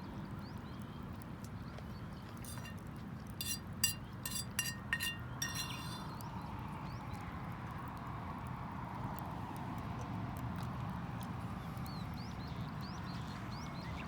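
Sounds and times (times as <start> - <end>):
light ringing clinks: 2.4 - 2.8, 3.4 - 6.2.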